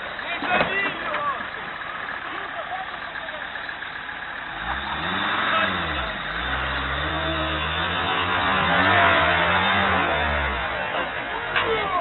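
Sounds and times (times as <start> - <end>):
car engine revving: 4.3 - 12.0.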